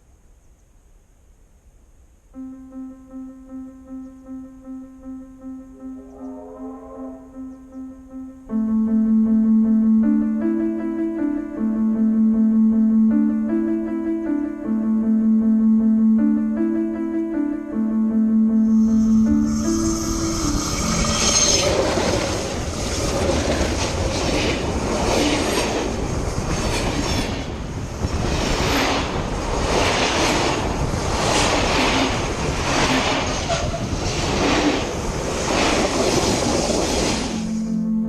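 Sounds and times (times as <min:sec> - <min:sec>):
train running on rails: 0:18.8 - 0:37.8.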